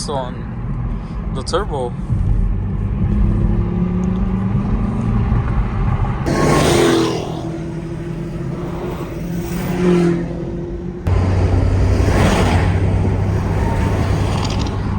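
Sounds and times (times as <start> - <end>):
car engines running: 0.0 - 14.9
car accelerating hard past: 2.8 - 14.9.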